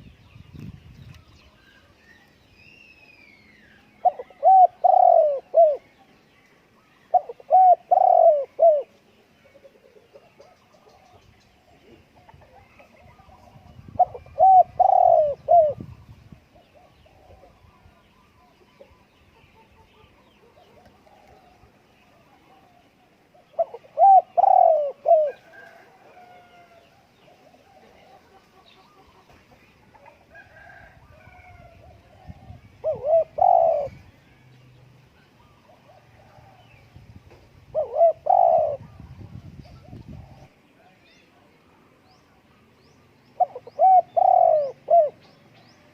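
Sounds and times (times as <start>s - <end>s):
distant birds calling: 1.1s - 45.9s
faint background dove coos: 3.0s - 36.9s, 37.7s - 45.9s
dove cooing: 4.0s - 6.0s, 7.1s - 11.2s, 11.8s - 15.9s, 22.4s - 29.1s, 30.4s - 34.1s, 37.7s - 40.5s, 43.4s - 45.3s.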